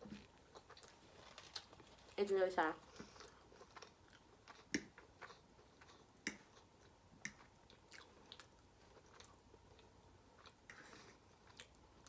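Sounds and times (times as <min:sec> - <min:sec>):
close chewing mouth sounds: 0:02.8 - 0:12.0.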